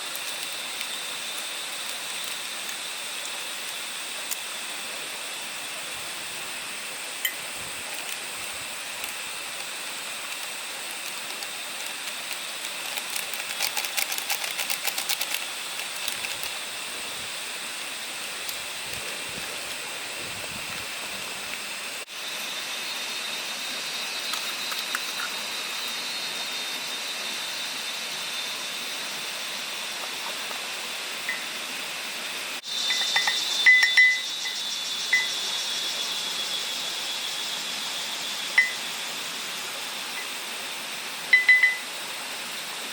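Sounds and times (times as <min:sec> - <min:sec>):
forest hiss: 0:00.0 - 0:42.9
rapid ticks: 0:09.0 - 0:16.5.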